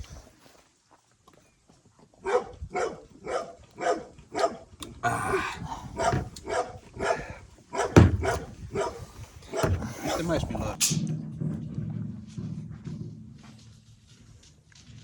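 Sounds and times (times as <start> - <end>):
dog barking: 2.2 - 10.4.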